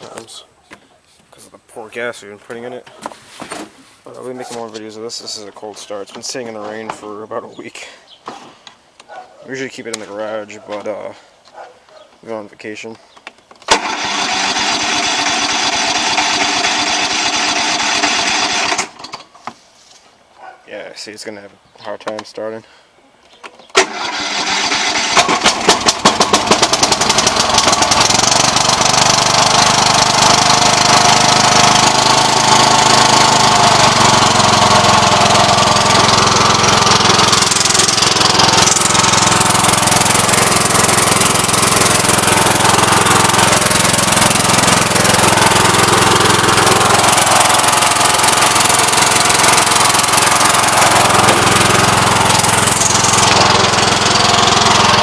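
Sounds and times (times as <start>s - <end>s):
tractor engine starting and running: 0.0s - 0.4s, 13.6s - 19.3s, 23.7s - 55.0s.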